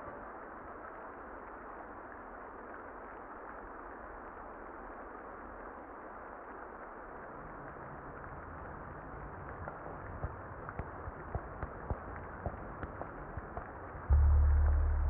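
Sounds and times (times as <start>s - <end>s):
muffled rain: 0.0s - 15.0s
faint low rumble: 14.1s - 15.0s.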